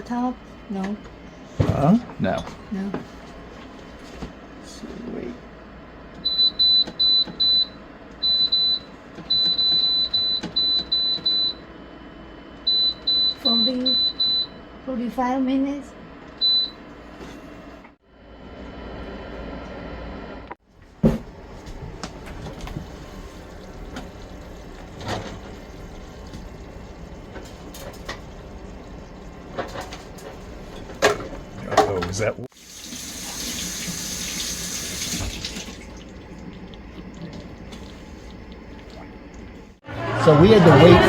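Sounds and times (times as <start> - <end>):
oven alarm beeping: 6.2 - 11.7, 12.6 - 14.8, 16.4 - 16.8, 21.3 - 32.0.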